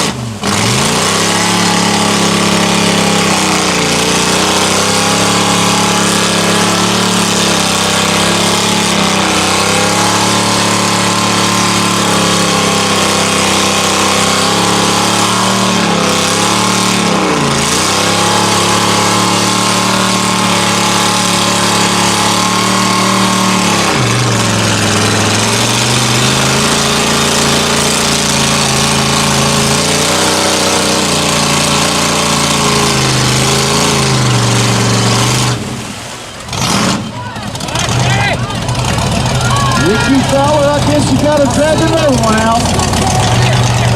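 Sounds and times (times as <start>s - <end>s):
truck engine revving high: 0.0s - 43.9s.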